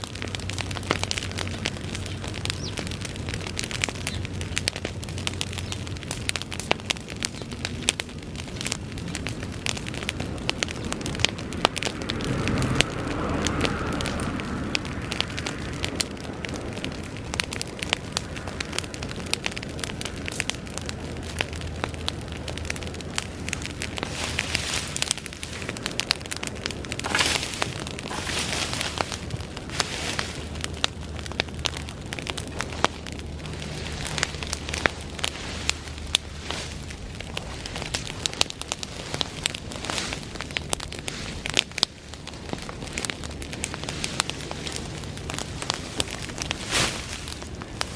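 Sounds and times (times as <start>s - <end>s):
fire crackling and popping: 0.0s - 47.9s
fire rushing: 0.0s - 47.9s
fire hiss: 23.5s - 31.2s.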